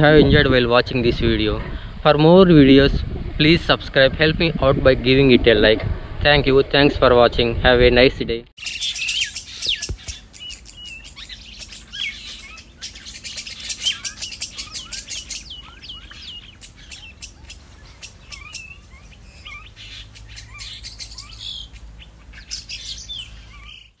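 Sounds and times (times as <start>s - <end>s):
small birds chirping: 8.6s - 24.0s.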